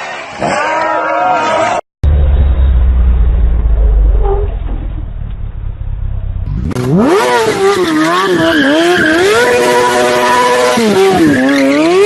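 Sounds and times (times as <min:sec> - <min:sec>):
low rumble: 0:02.0 - 0:06.9
high-revving vehicle engine: 0:02.0 - 0:12.0.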